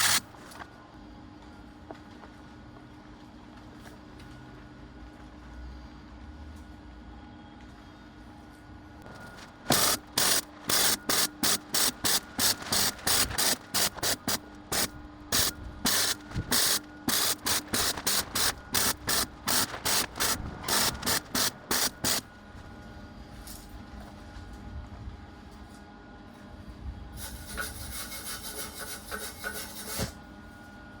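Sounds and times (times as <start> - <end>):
welding hiss bursts: 0.0 - 0.3, 9.3 - 22.2.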